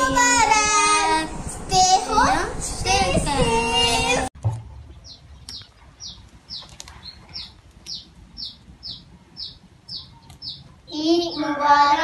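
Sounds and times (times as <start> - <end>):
child's voice: 0.0 - 4.3, 10.9 - 12.0
small bird chirping: 4.8 - 11.5.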